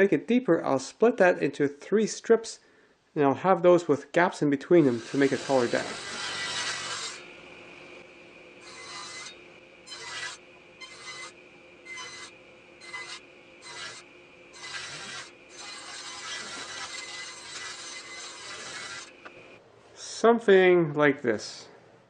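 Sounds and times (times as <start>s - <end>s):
rasping on wood: 4.9s - 7.2s, 11.9s - 14.0s, 14.6s - 19.1s.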